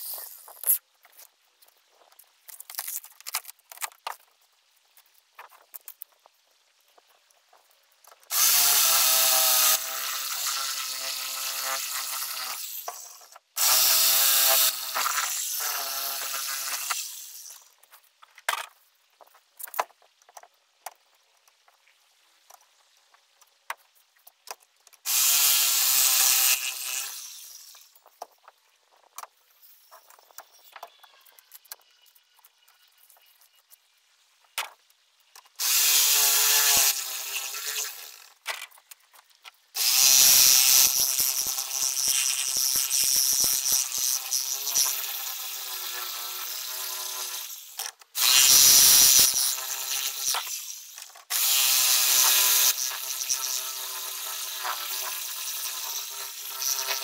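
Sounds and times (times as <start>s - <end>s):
power tool whining down: 8.3s - 17.7s, 25.1s - 27.9s, 35.6s - 38.4s, 39.8s - 57.0s.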